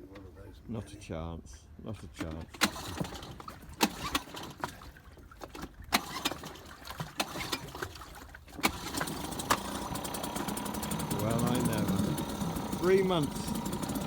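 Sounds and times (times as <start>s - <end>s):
outboard motor running: 2.5s - 14.0s
pull-start clacks: 8.6s - 14.0s.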